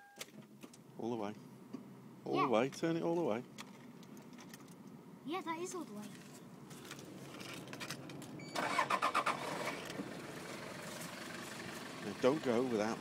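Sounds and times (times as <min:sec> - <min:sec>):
truck engine starting and idling: 0:07.4 - 0:13.0.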